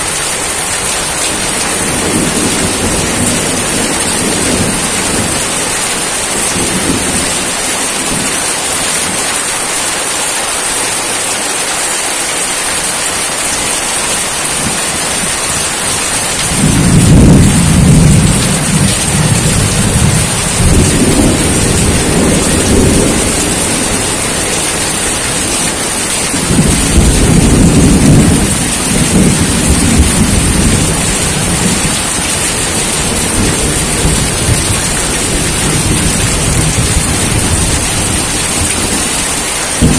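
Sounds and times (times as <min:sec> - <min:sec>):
rain hissing: 0:00.0 - 0:39.9
low rolls of thunder: 0:01.8 - 0:05.8, 0:16.0 - 0:39.2.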